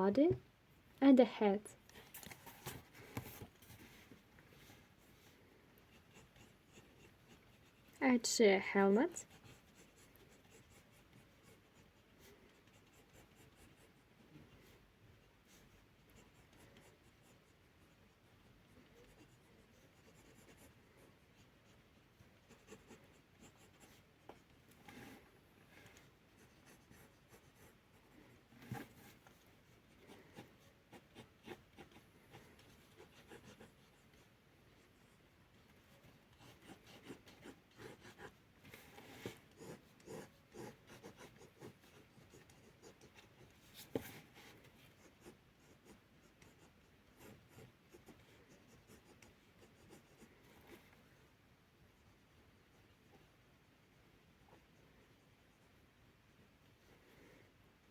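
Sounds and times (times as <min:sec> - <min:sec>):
drawing tool scratching on paper: 0:36.3 - 0:50.8.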